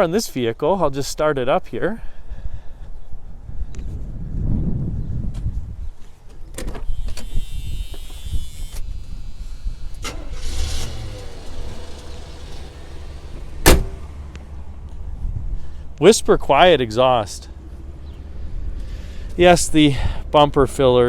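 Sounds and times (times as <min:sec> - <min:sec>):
starter motor cranking: 0:06.8 - 0:14.0
car engine idling: 0:06.9 - 0:20.5
sharp knock: 0:13.6 - 0:14.0.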